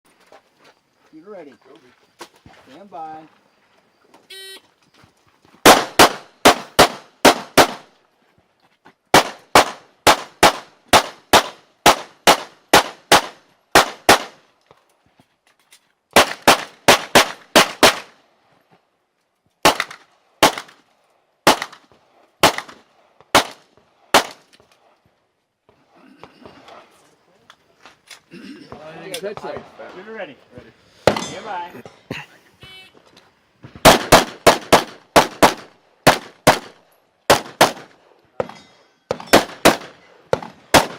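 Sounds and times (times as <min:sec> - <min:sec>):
pistol shots: 0:05.6 - 0:07.9, 0:09.1 - 0:14.4, 0:16.1 - 0:18.2, 0:19.6 - 0:20.8, 0:21.4 - 0:24.4, 0:33.8 - 0:38.0, 0:39.1 - 0:40.9.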